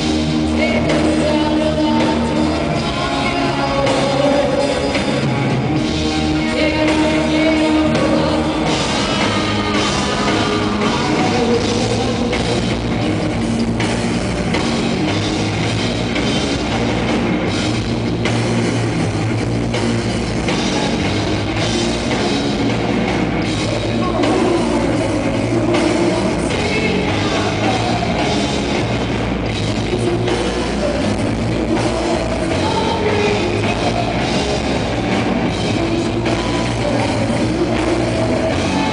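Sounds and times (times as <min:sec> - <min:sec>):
person singing: 0:00.0 - 0:14.8, 0:23.4 - 0:28.9, 0:29.6 - 0:38.9
rock band playing live: 0:00.0 - 0:38.9.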